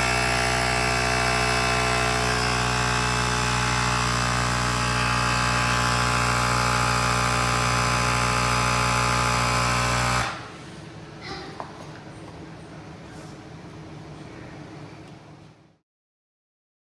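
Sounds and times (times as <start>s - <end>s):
electric compressor droning: 0.0s - 11.2s.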